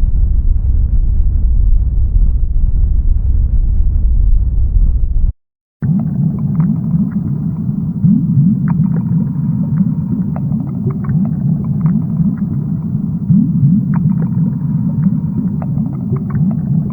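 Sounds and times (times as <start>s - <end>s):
sharp underwater clicks: 5.8s - 16.9s
underwater rumble of rising calls: 5.8s - 16.9s.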